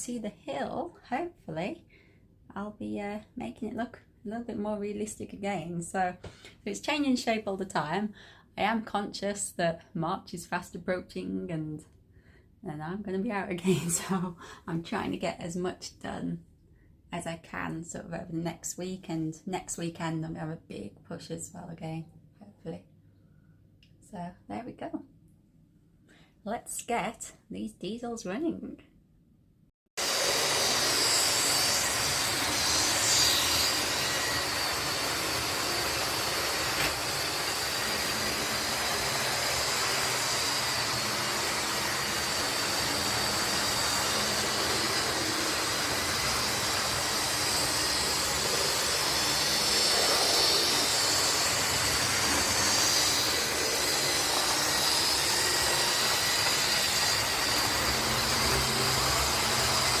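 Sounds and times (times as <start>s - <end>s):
model locomotives running: 30.0s - 60.0s.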